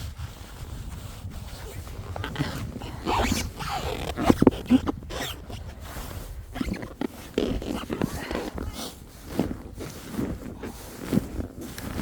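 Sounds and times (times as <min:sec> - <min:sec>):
packed snow crunching: 0:00.4 - 0:12.0.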